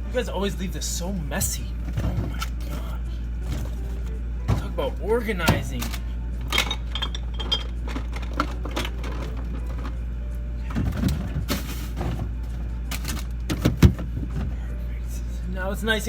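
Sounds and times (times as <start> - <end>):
containers clinking and knocking: 1.8 - 10.0.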